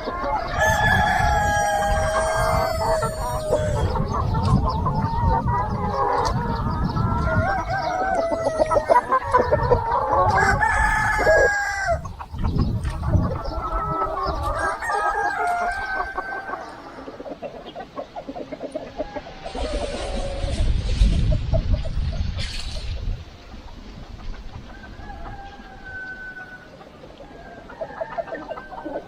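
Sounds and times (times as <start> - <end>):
rooster crowing: 0.0 - 4.2, 5.5 - 12.0, 13.7 - 16.9, 24.7 - 26.7
chickens clucking: 0.0 - 29.0.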